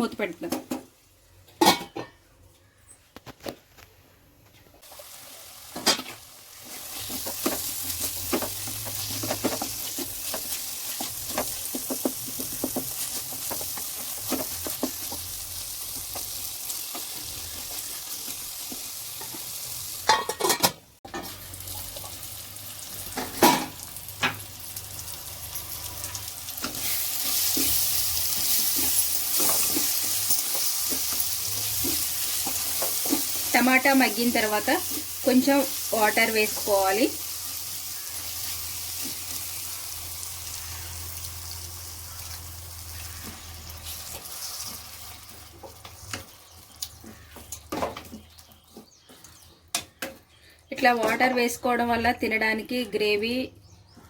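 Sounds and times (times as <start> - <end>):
tomatoes sizzling in a pan: 4.8 - 20.5, 21.1 - 47.4.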